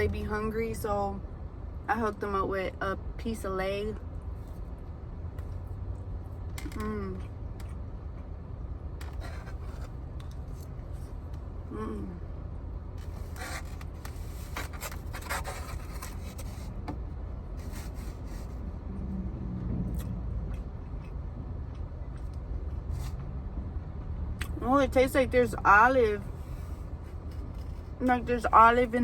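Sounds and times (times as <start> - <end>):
steady low rumble: 0.0 - 29.0
scratchy sounds: 13.0 - 16.8.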